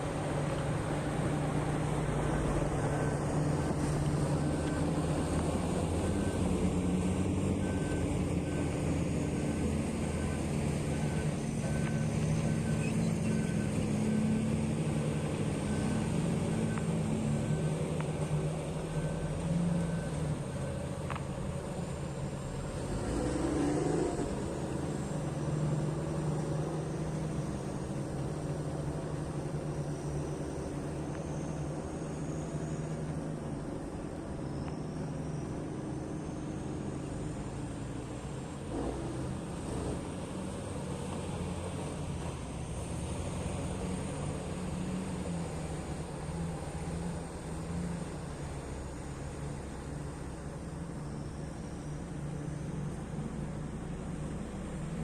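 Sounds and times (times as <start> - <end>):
diesel engine running under load: 0.0 - 55.0
reversing alarm beeping: 1.3 - 37.0.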